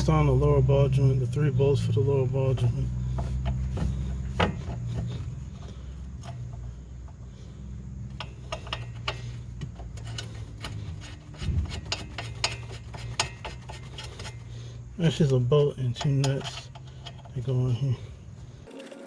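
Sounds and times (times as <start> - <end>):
steady low hum: 0.0 - 18.7
metallic clicks of hand tools: 8.0 - 14.5, 15.2 - 17.5.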